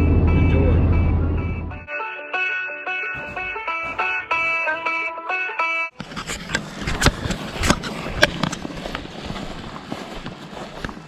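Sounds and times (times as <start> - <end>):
banjo music: 0.1 - 8.5
footsteps through brush: 6.0 - 11.0.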